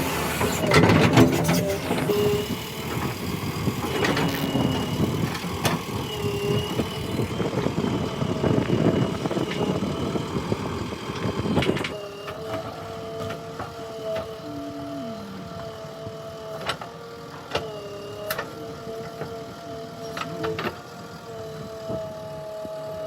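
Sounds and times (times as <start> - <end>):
backhoe diesel engine working: 0.0 - 23.0
thin high whine: 14.2 - 15.8
steady pitched tones: 14.3 - 16.0.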